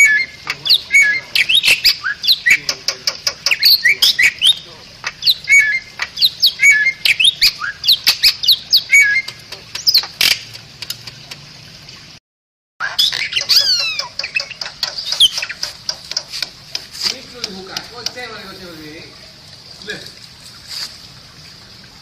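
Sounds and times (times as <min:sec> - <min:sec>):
bird whistles chirps and squawks: 0:00.0 - 0:10.4, 0:12.8 - 0:15.7.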